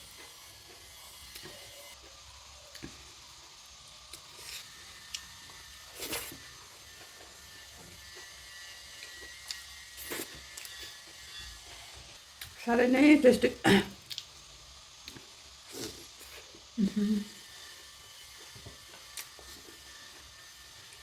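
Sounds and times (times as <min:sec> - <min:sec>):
person chewing: 0:04.1 - 0:06.5, 0:09.0 - 0:11.0, 0:14.0 - 0:14.4, 0:15.0 - 0:16.7, 0:18.4 - 0:20.4.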